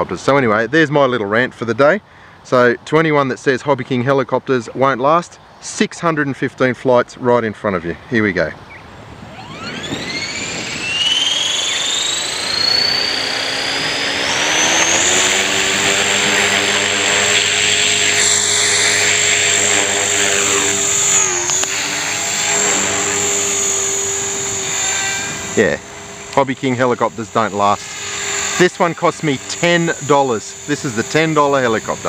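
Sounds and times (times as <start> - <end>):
rc helicopter motor whine: 8.7 - 32.0.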